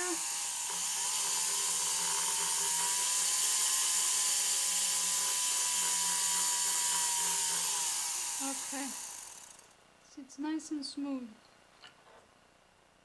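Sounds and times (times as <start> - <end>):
rotary tool whining: 0.0 - 9.7.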